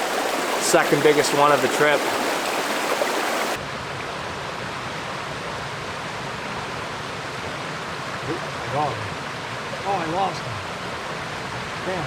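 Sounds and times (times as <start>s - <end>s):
creek water rushing over stones: 0.0s - 4.1s.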